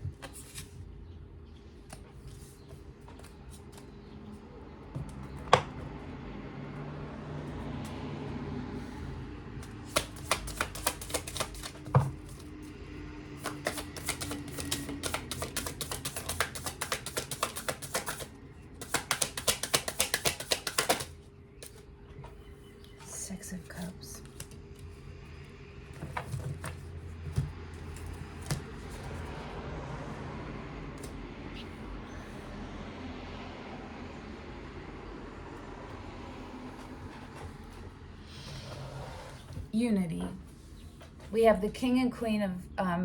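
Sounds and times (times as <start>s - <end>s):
cards being shuffled: 9.6s - 12.6s, 13.4s - 21.8s.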